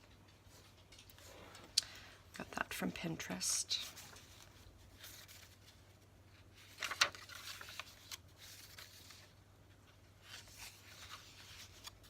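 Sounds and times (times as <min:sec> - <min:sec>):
paper crackle: 0:03.7 - 0:12.0
paper pages rustling: 0:03.7 - 0:12.0.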